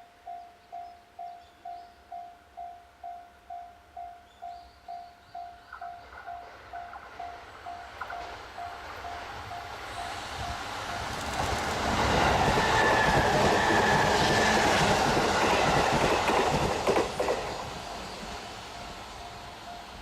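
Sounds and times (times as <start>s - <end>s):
freight train rumble: 4.9s - 20.0s
wheels clattering over rail joints: 11.0s - 18.0s
wagons knocking: 11.4s - 17.7s.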